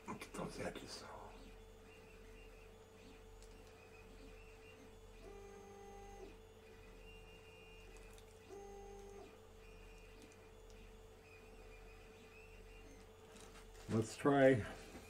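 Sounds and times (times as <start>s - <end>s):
printer stepper motors whining: 0.0s - 15.0s
stepped motor tones: 1.3s - 13.4s.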